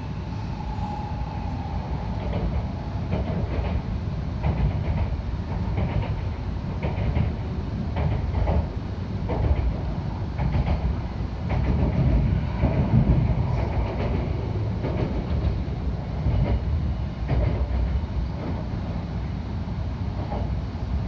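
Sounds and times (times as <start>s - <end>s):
train running rumble: 0.0s - 21.0s
wheels clacking on track: 2.1s - 18.8s.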